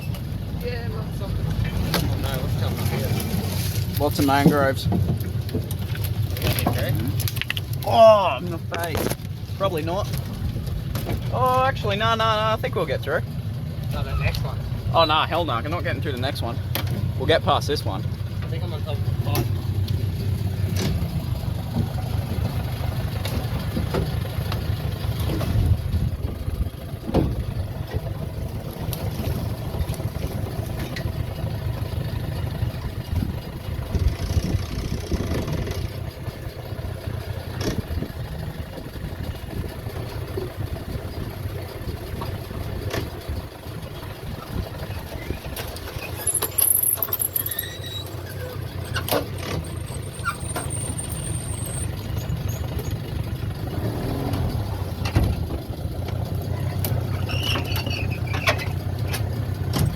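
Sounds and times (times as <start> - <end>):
outboard motor running slowly: 0.0 - 59.9
high squeak: 46.0 - 53.0, 57.1 - 58.8.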